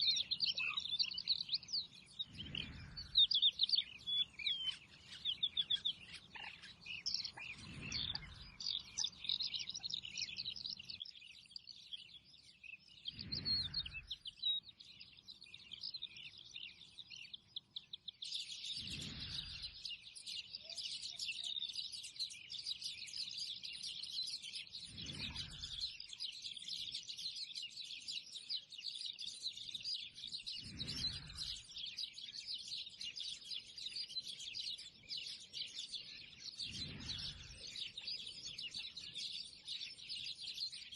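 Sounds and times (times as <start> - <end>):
small birds chirping: 0.0 - 40.9
low whoosh: 2.3 - 3.2, 13.2 - 14.2, 30.6 - 31.6.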